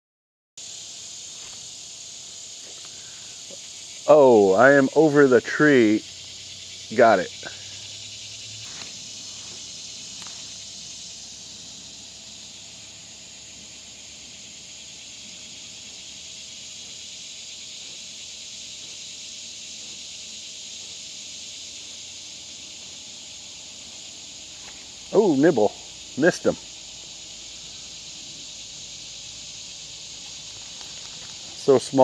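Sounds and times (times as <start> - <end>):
insects buzzing: 0.6 - 32.0.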